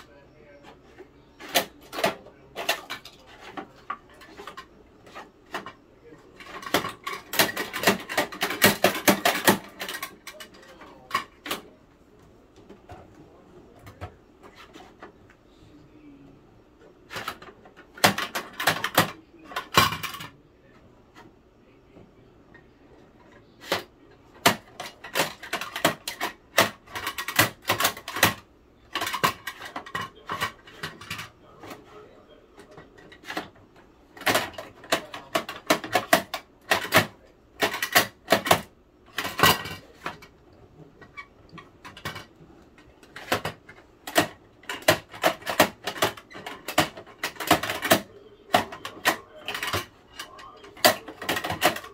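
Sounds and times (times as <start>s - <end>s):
plastic toy truck clicking: 1.4s - 11.7s, 17.1s - 20.4s, 23.3s - 31.9s, 32.6s - 40.3s, 41.0s - 51.9s.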